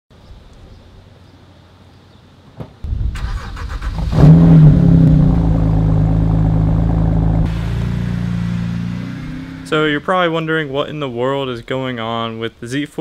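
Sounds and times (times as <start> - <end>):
thump: 2.6 - 2.8
car engine starting and idling: 2.9 - 10.2.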